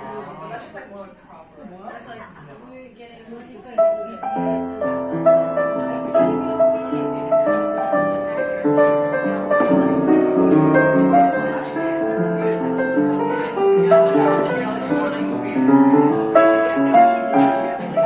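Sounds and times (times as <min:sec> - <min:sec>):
piano chords and melody: 0:04.0 - 0:18.0
jazz band playing: 0:04.5 - 0:18.0.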